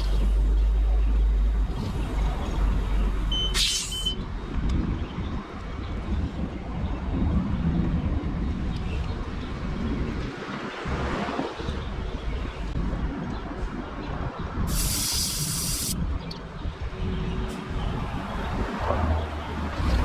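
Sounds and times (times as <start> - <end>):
motorcycle engine and road rumble: 0.0 - 10.2
wind buffeting microphone: 4.1 - 20.0.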